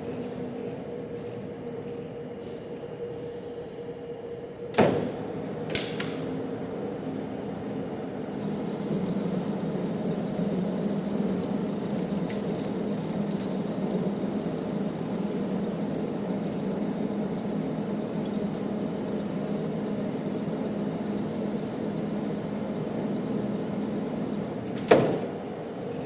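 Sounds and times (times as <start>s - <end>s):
metal lathe motor hum: 8.4s - 24.6s
steady high hiss: 8.4s - 24.6s.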